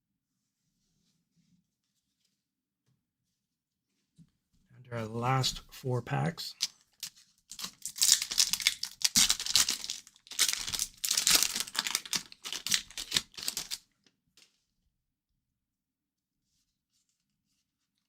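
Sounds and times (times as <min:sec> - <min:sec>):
card wrappers crinkling: 0:06.6 - 0:13.8.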